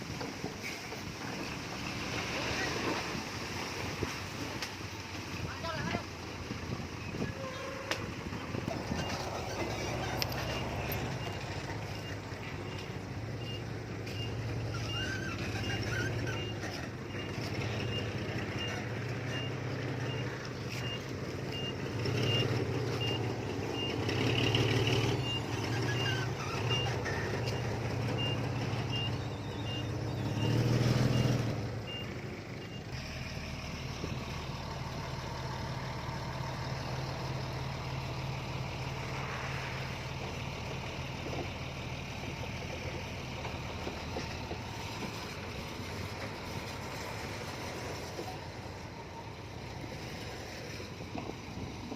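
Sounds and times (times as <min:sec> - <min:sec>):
heavy diesel machinery running: 0:00.0 - 0:51.9
reversing alarm beeping: 0:24.6 - 0:32.9.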